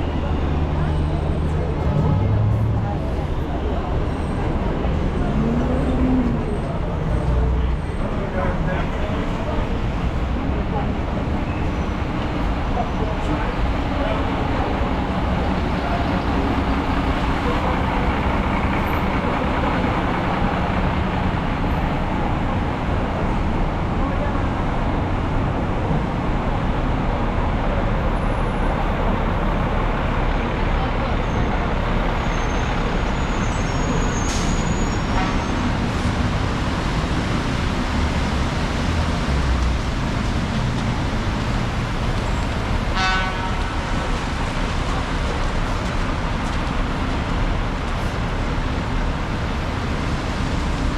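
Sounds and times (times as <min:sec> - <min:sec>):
traffic engines: 0:00.0 - 0:50.9.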